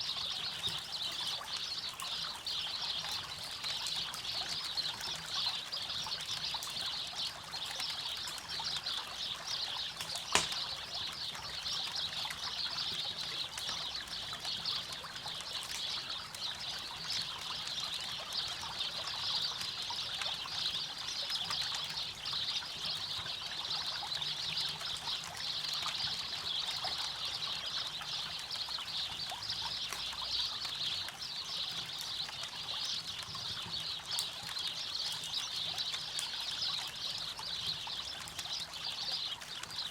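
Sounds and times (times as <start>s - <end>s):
campfire crackles: 0.0s - 39.9s
loud campfire pop: 10.0s - 11.0s.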